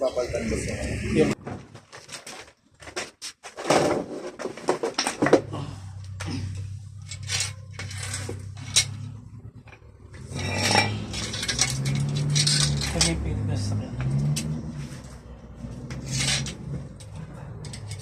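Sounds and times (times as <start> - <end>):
metallic clinks of tools: 10.4 - 13.2.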